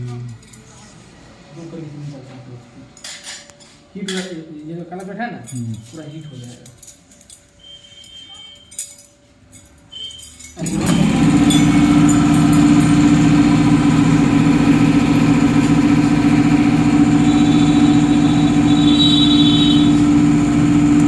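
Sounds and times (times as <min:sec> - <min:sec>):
loud machine humming: 0:10.6 - 0:21.0.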